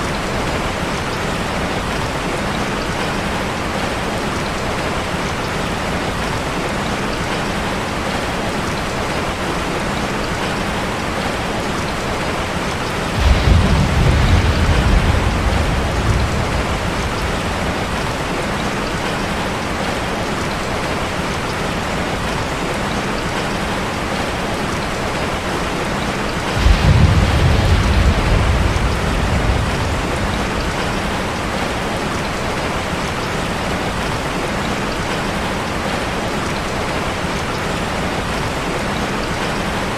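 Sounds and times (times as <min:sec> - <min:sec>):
rain on a metal roof: 0:00.0 - 0:39.9
thunder rumbling: 0:12.8 - 0:19.9, 0:26.4 - 0:32.8.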